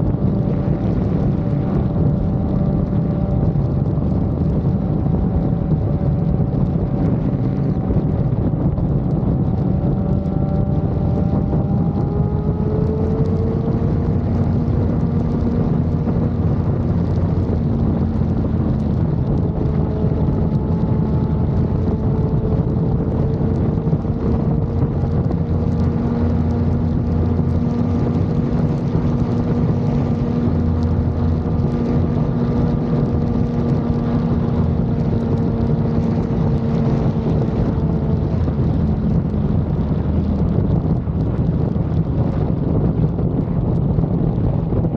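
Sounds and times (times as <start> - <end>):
motorcycle engine running: 0.0 - 44.9
wind rushing over microphone: 0.0 - 44.9.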